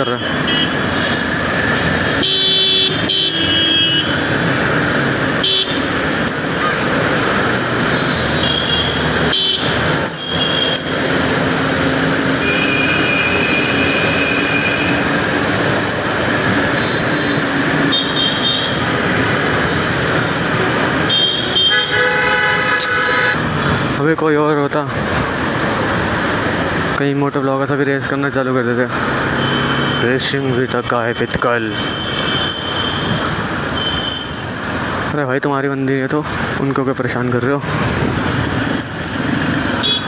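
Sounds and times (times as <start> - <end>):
vehicle horn honks: 0.0 - 1.1, 2.2 - 4.2, 21.1 - 23.4
wind and engine noise: 30.8 - 40.0.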